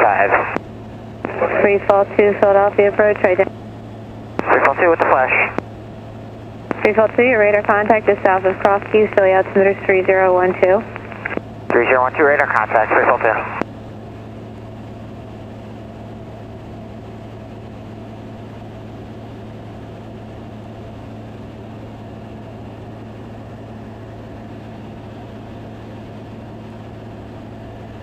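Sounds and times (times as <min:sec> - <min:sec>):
aircraft engine and propeller drone: 0:00.0 - 0:28.0.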